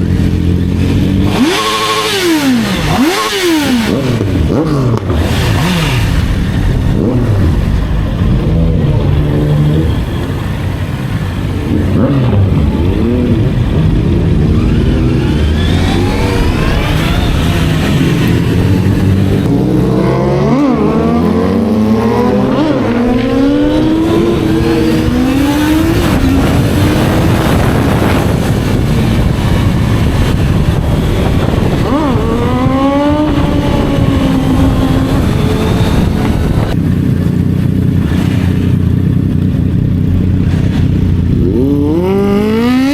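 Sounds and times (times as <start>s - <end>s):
motorcycle engines revving: 0.0s - 42.9s
rush of wind: 0.0s - 42.9s.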